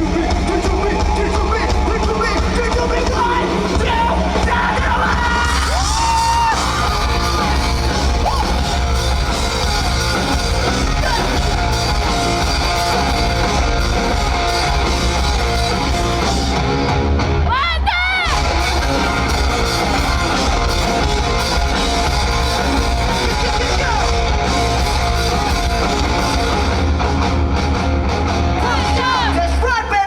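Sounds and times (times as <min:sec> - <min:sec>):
sung and shouted vocals: 0:00.0 - 0:08.9
live rock band playing: 0:00.0 - 0:30.0.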